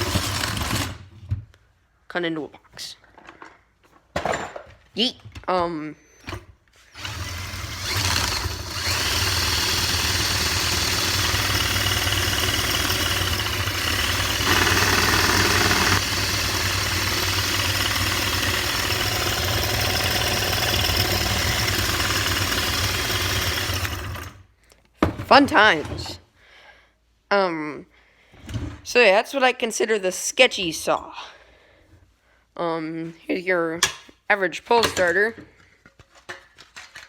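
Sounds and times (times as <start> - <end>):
drill motor running: 0.0 - 1.0, 7.0 - 24.4
chainsaw chain cutting cardboard: 0.0 - 1.1, 6.9 - 24.5.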